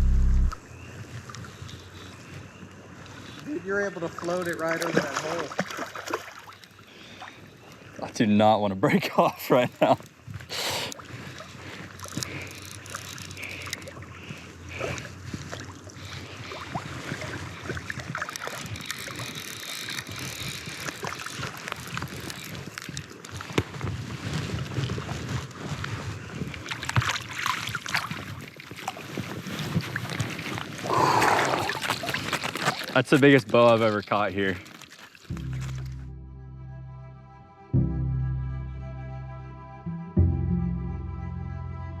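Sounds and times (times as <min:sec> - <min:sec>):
water splashing and sloshing: 0:04.0 - 0:08.0, 0:09.5 - 0:36.0.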